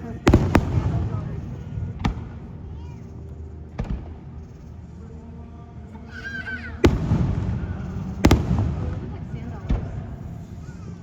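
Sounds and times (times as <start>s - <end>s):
fireworks bangs: 0.0s - 2.3s, 6.8s - 10.2s
low rolling rumble: 6.8s - 10.6s.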